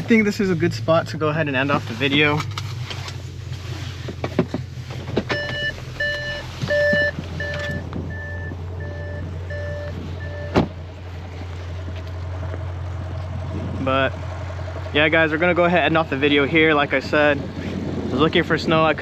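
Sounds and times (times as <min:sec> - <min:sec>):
car engine idling: 0:00.0 - 0:19.0
electronic warning chime beeping: 0:05.4 - 0:10.6.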